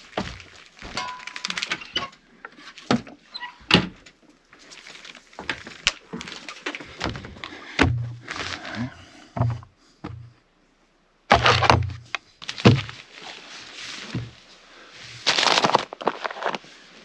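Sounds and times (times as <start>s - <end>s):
objects knocking and thudding: 0.0s - 2.2s, 5.4s - 10.4s, 11.3s - 13.0s
rustling: 0.0s - 9.2s, 11.3s - 17.0s.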